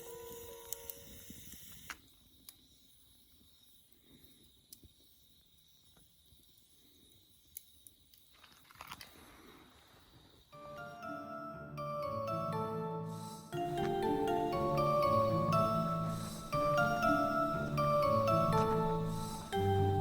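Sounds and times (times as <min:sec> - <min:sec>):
background music: 0:10.6 - 0:20.0.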